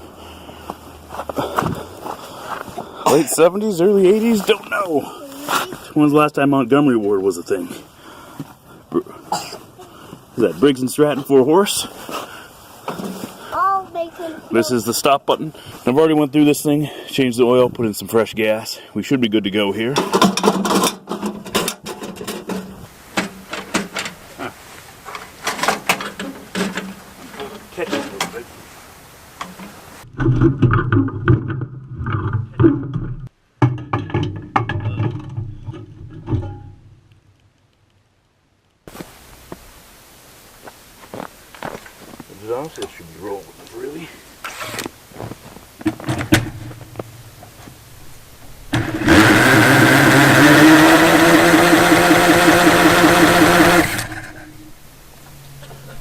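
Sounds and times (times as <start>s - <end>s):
snow blower engine running: 48.7s - 54.5s
engine cranking: 48.7s - 54.6s
starter whirring: 48.7s - 54.6s.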